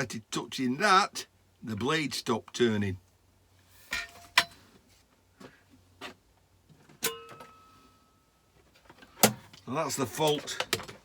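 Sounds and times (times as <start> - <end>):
brief metallic ring: 7.0 - 8.2.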